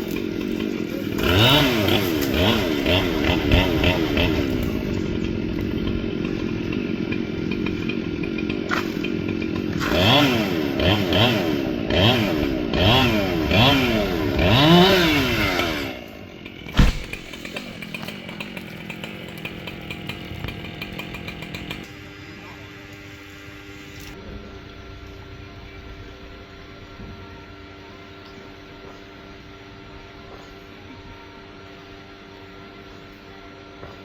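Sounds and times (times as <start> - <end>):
chainsaw revving: 0.0 - 21.9
sharp knock: 16.7 - 17.4.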